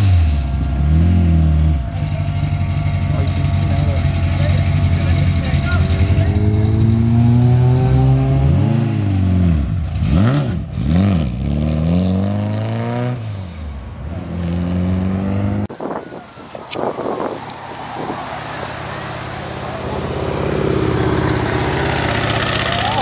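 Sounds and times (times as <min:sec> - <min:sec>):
car engine running: 0:00.0 - 0:08.8, 0:17.5 - 0:23.0
car engine revving: 0:00.0 - 0:15.7, 0:17.1 - 0:23.0.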